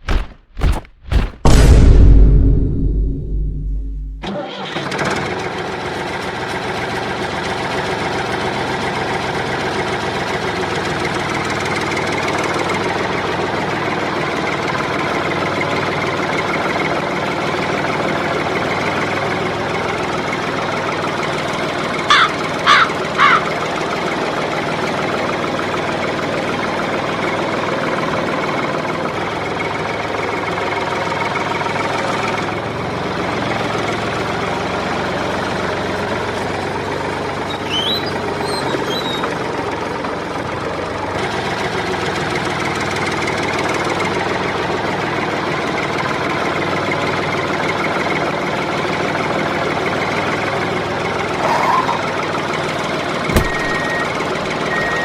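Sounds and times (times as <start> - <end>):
sharp knock: 0.0 - 4.2, 53.3 - 54.0
small engine chugging: 4.6 - 55.0
short beeps: 53.3 - 55.0.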